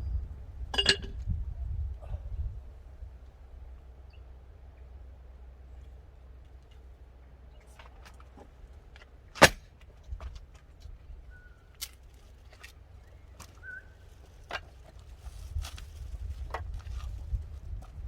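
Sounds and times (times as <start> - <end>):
wind rumble on microphone: 0.0 - 3.9, 10.0 - 11.5, 15.0 - 18.0
sharp loud crack: 9.4 - 9.6.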